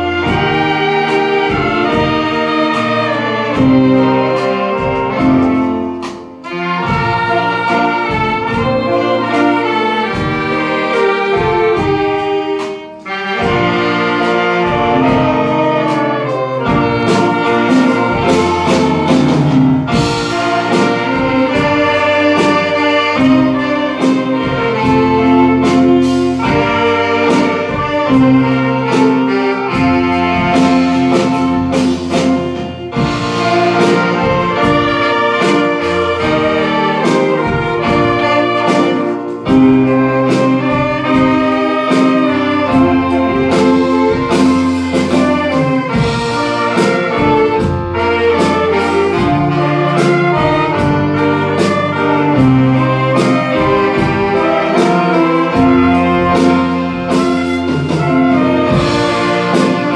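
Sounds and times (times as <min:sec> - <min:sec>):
saxophone ensemble playing: 0:00.0 - 0:59.9
steady beat: 0:00.0 - 0:59.9.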